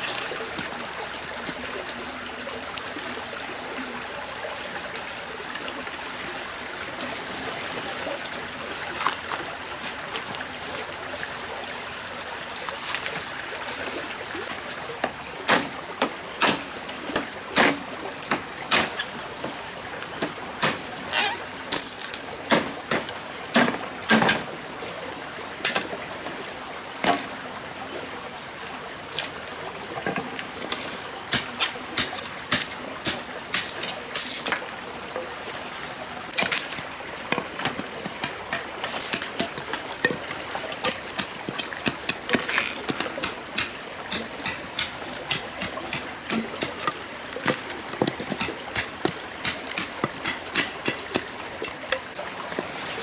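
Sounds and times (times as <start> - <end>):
stream running: 0.0 - 53.0.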